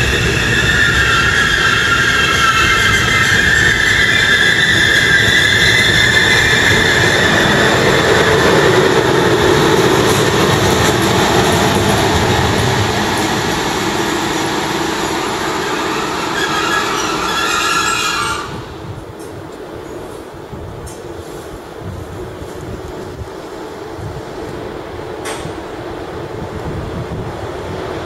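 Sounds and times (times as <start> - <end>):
high wheel squeal: 0.0 - 9.4, 13.5 - 18.9
train rolling past: 0.0 - 28.0.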